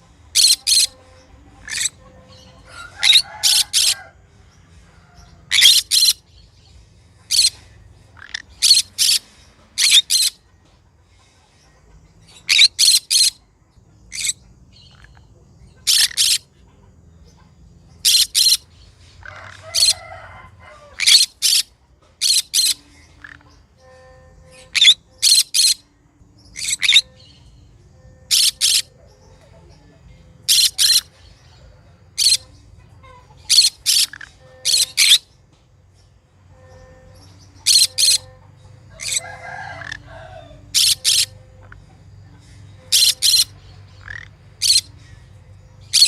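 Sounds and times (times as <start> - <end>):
parrot chattering softly: 0.3 - 4.0, 5.5 - 6.2, 14.1 - 16.5, 28.3 - 35.2, 36.5 - 42.1, 42.7 - 45.0
parrot squawking shrilly: 0.4 - 0.9, 1.6 - 2.0, 2.6 - 4.1, 5.5 - 6.2, 9.8 - 10.4, 12.5 - 13.4, 15.8 - 16.4, 18.0 - 18.6, 19.2 - 23.4, 24.6 - 25.8, 28.3 - 28.9, 30.5 - 31.1, 33.5 - 35.2, 37.6 - 38.3, 38.9 - 41.3, 42.9 - 44.9.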